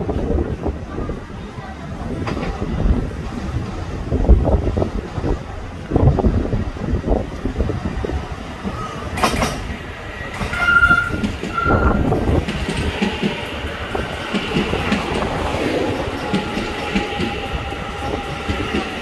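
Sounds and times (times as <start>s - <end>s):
train rumble: 0.0s - 19.0s
train whine: 0.0s - 19.0s
train brake squeals: 10.4s - 12.1s.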